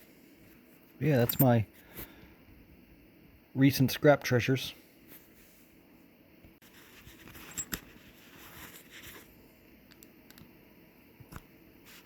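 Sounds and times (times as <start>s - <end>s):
rubbing and rustling: 6.6s - 9.3s.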